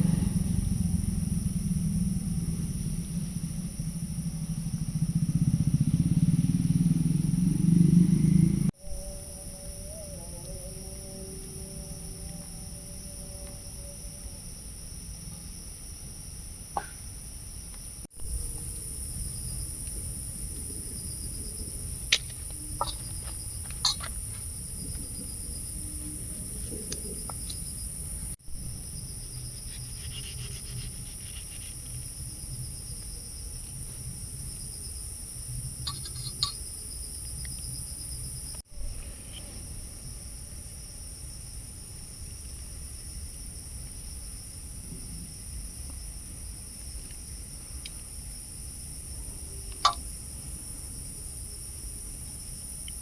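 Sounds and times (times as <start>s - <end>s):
low rumble: 0.0s - 14.3s
forest insects shrilling: 7.8s - 14.8s, 18.1s - 39.9s.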